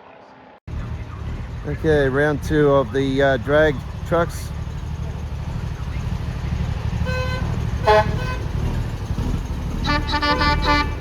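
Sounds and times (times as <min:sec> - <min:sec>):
vehicle horns tooting: 0:06.0 - 0:11.0.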